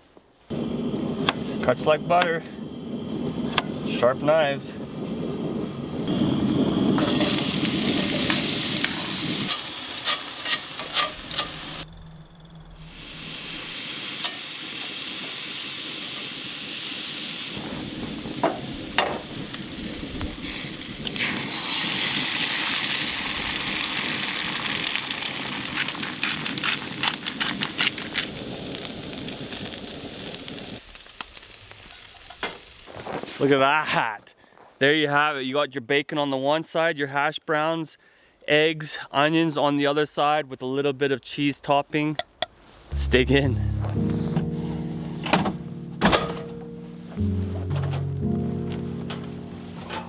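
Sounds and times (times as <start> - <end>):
food sizzling in a pan: 6.1 - 11.8, 12.9 - 33.4
cooking utensils clicking and scraping: 8.8 - 11.8.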